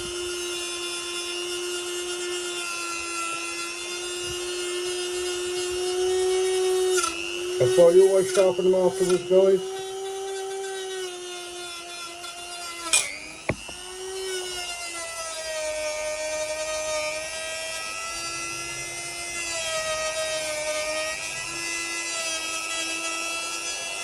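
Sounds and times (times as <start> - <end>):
rotary tool whining on steel: 0.0 - 24.0
knock: 13.5 - 13.8.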